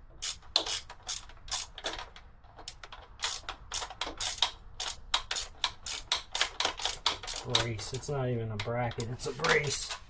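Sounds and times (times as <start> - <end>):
ratchet wrench clicking: 0.2 - 7.7.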